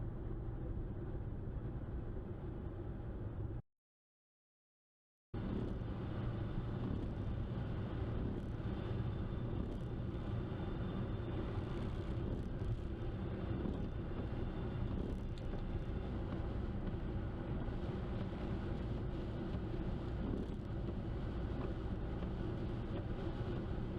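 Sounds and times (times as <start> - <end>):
car engine and tyre rumble: 5.4 - 23.9.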